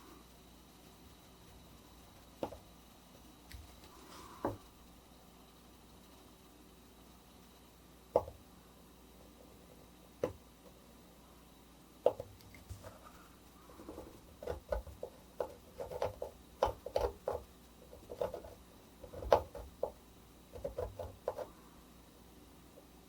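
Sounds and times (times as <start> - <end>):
etching needle tapping on metal plate: 13.8 - 21.5.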